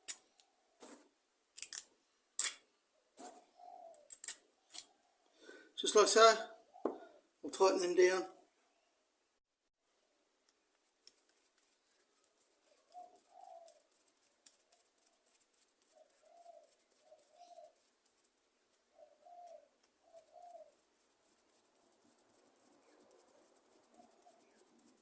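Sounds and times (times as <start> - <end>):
bird cooing: 3.2 - 4.1, 12.9 - 13.8, 15.9 - 17.8, 18.9 - 20.8, 23.9 - 24.7.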